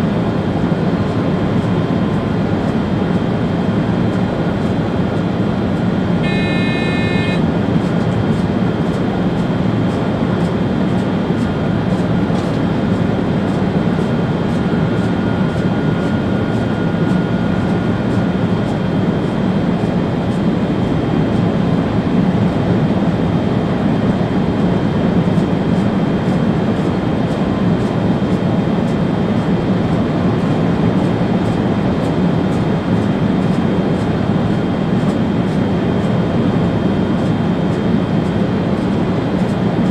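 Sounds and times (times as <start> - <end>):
train running noise in cab: 0.0 - 39.9
short electronic beep: 6.2 - 7.4.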